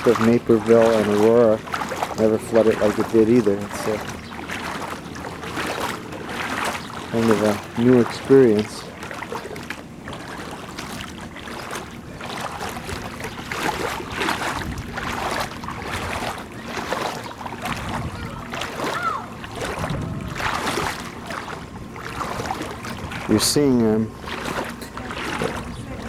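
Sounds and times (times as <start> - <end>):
floodwater running and lapping: 0.0 - 26.0
wind on microphone: 10.9 - 26.0.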